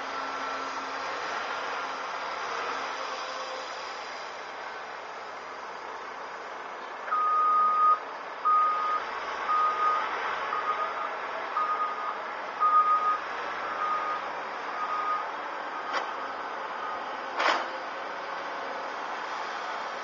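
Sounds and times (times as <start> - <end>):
truck reversing alarm beeping: 7.1 - 17.4.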